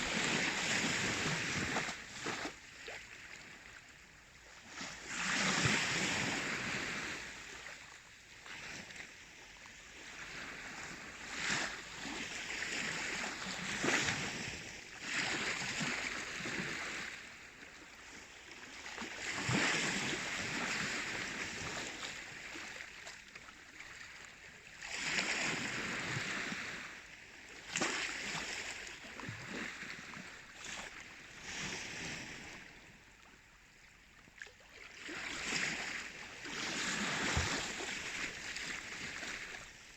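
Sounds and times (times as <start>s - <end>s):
sea waves breaking: 0.0s - 2.5s, 27.7s - 33.1s, 34.8s - 39.9s.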